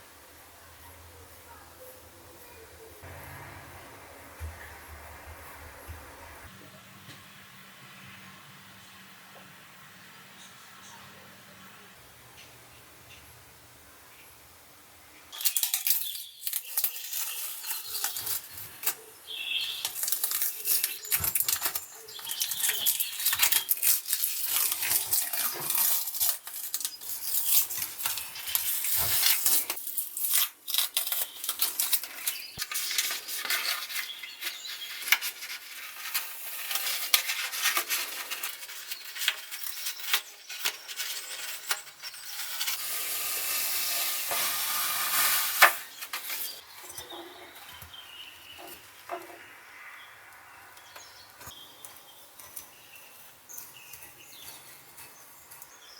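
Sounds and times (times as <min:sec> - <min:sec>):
scratchy scraping on cast iron: 0:15.5 - 0:29.8, 0:31.2 - 0:49.4.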